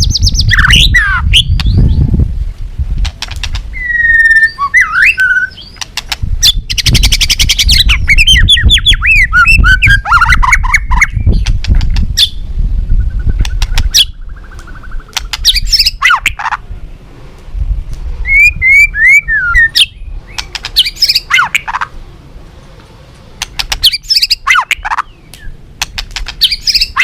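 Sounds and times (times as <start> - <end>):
songbird singing whistles and trills: 0.0 - 2.2, 3.7 - 11.5, 12.2 - 16.5, 18.2 - 21.8, 23.6 - 25.6, 26.4 - 27.0.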